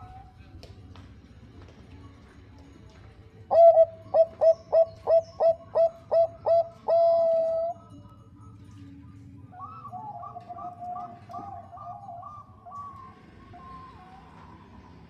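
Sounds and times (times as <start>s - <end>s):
dove cooing: 3.5s - 8.1s, 9.5s - 15.0s.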